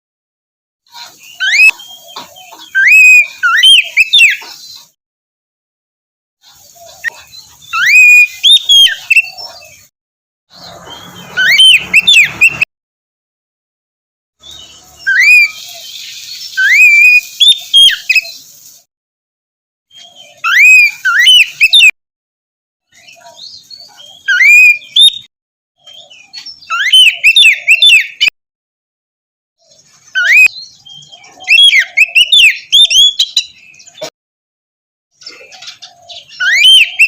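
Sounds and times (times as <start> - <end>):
bird singing whistled phrases: 1.3 - 4.4, 7.7 - 9.9, 10.6 - 12.7, 14.5 - 18.5, 20.0 - 22.0, 23.9 - 28.3, 30.1 - 33.9, 36.1 - 37.0.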